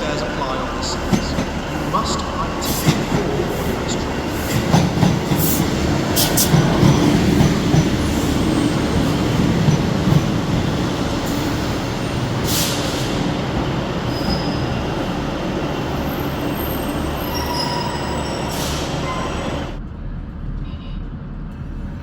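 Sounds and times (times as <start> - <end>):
train rumble: 0.0 - 22.0
wheel squeals: 16.6 - 19.6.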